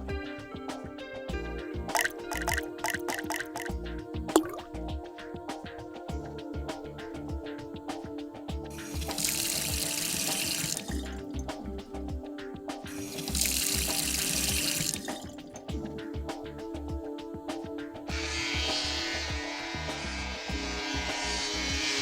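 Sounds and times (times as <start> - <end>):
water running from a tap: 8.8 - 11.2, 12.9 - 15.6.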